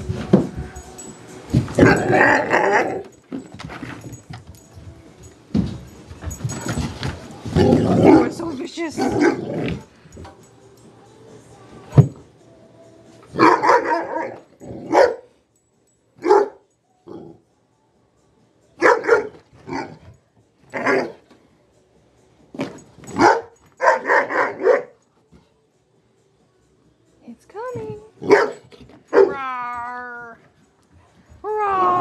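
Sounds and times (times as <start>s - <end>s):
dog barking: 9.0s - 9.5s, 13.4s - 15.3s, 16.2s - 16.6s, 18.8s - 20.0s, 20.8s - 21.2s, 23.1s - 25.0s, 28.2s - 29.4s.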